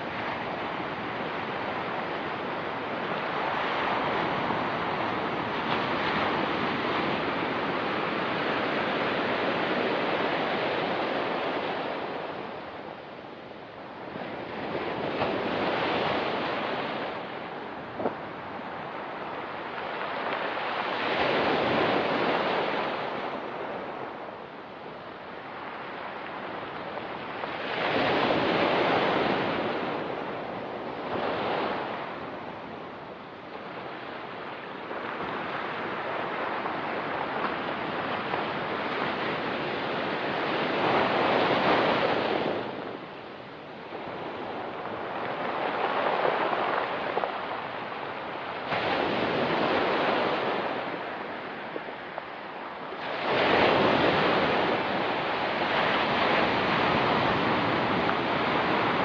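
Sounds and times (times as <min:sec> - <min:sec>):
waves breaking on pebble beach: 0:34.4 - 0:59.0.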